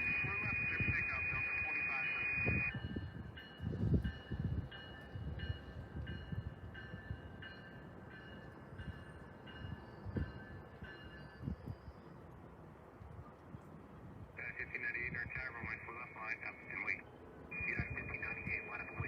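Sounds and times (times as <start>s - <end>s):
electronic beeping tone: 0.0s - 2.7s, 17.5s - 19.0s.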